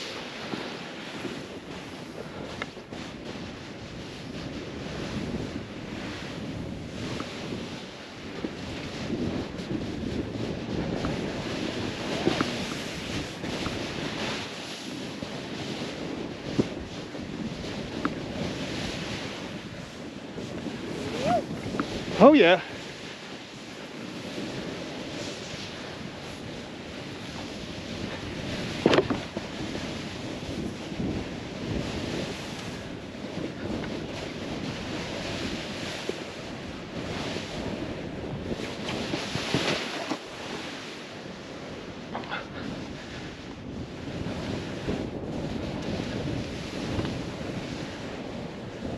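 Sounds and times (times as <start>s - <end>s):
snowboard hissing through snow: 0.0s - 48.9s
wind on microphone: 0.0s - 48.9s
short voice sound: 21.0s - 21.5s.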